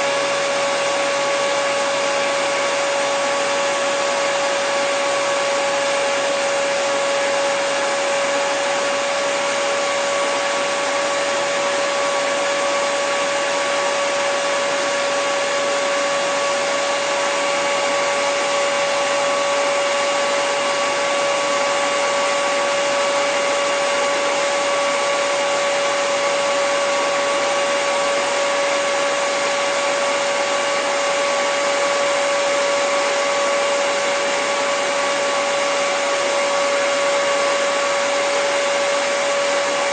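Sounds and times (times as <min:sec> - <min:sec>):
hairdryer running: 0:00.0 - 0:39.9.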